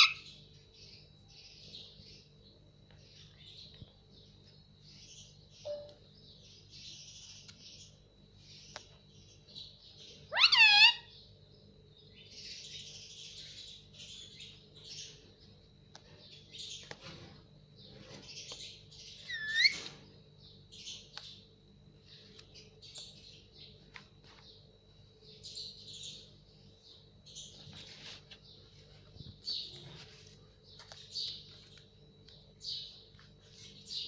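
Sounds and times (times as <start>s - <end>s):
parrot chattering and chirping: 0.0s - 0.3s, 10.3s - 11.1s, 19.2s - 19.8s
parrot calling sharply: 10.3s - 11.1s, 19.3s - 19.8s.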